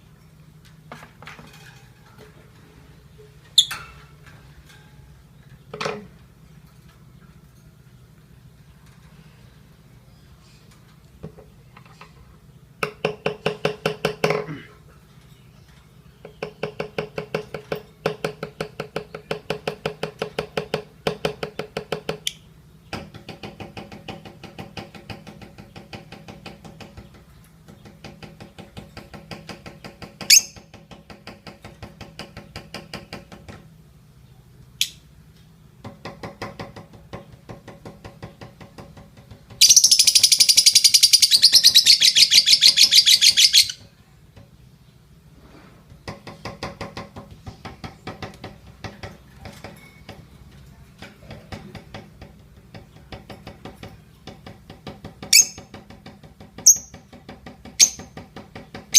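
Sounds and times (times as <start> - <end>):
lovebird rapid chattering: 39.6 - 43.8, 55.3 - 55.8, 56.6 - 57.1, 57.8 - 58.2
sharp bird chirps: 39.6 - 43.8.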